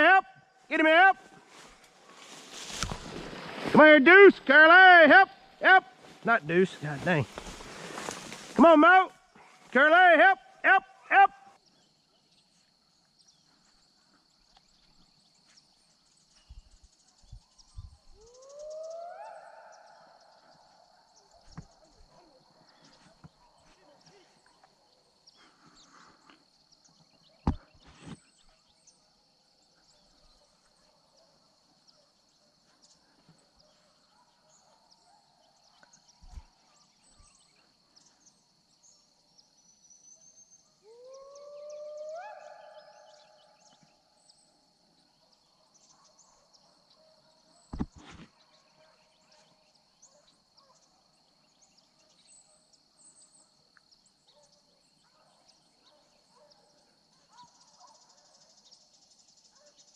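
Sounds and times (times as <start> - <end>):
distant hound howling: 18.2 - 20.8, 40.8 - 43.5.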